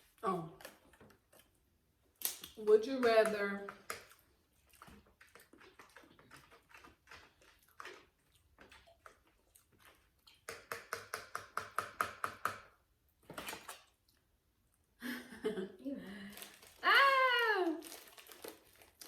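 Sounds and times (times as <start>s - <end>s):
wet chewing and lip smacks: 0.0s - 2.7s, 3.7s - 11.1s.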